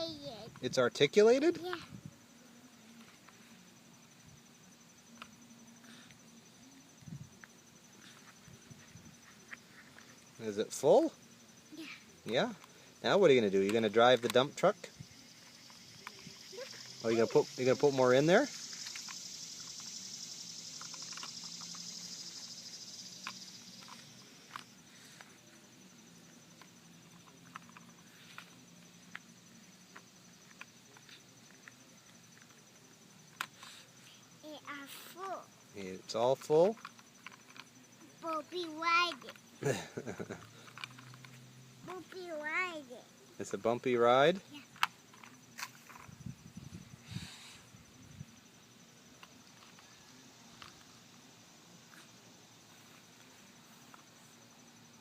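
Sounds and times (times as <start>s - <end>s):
pulsing insect trill: 0.0s - 55.0s
steady high hiss: 0.0s - 55.0s
toy vehicles clicking in dirt: 5.0s - 6.2s, 7.4s - 11.2s, 11.8s - 46.3s, 49.1s - 51.3s.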